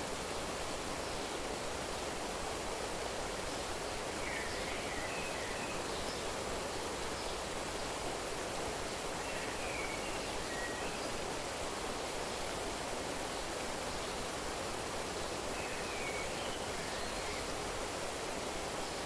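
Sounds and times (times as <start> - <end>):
flowing water rushing: 0.0 - 19.0.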